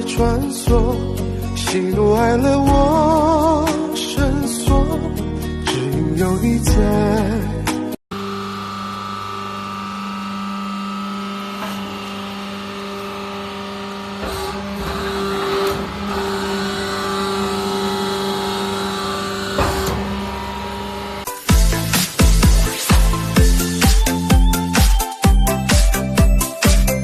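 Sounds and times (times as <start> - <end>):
hydraulic pump motor humming: 8.1 - 25.9.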